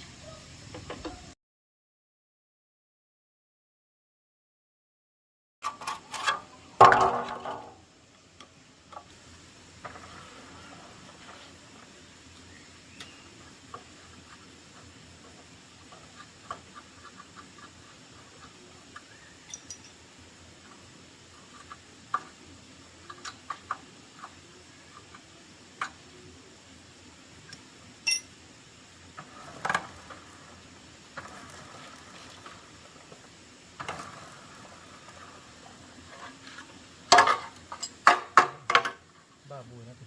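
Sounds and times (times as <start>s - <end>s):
clicks and clinks of small objects: 19.5s - 20.0s, 27.5s - 28.3s.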